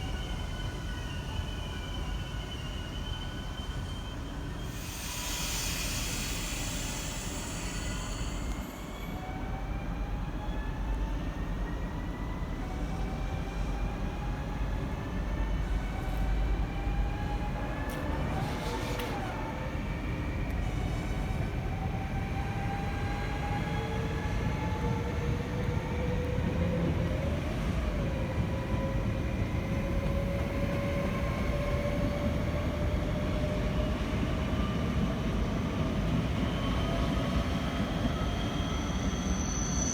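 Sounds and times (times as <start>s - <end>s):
train rumbling: 12.0s - 39.4s.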